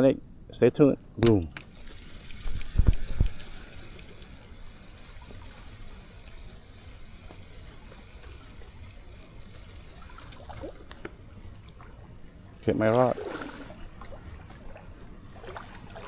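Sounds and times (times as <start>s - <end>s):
river water running: 0.0s - 16.0s
dull low thump: 2.4s - 3.4s.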